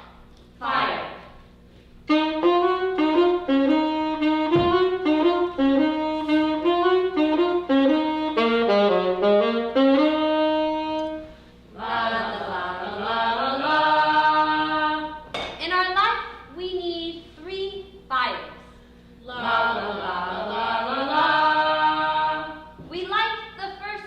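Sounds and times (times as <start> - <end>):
saxophone slow melody: 2.0 - 11.5.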